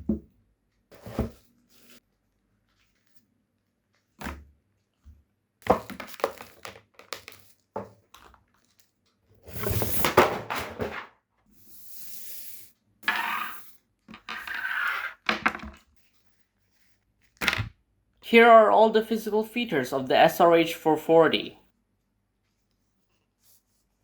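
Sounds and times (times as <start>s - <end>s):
packaging clicks and knocks: 5.8s - 7.5s.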